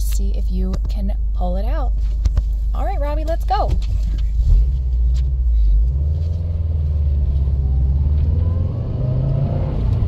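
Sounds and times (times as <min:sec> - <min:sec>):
road rumble inside car: 0:00.0 - 0:10.0
car engine accelerating: 0:03.8 - 0:10.0.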